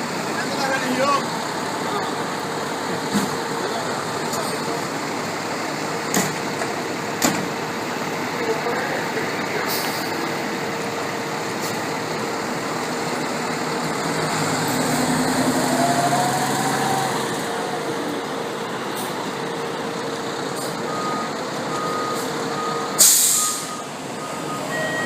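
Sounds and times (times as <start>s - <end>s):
fire engine running: 0.0s - 25.0s
air brakes hissing: 9.6s - 10.2s, 23.0s - 23.9s
reversing alarm beeping: 20.6s - 25.0s.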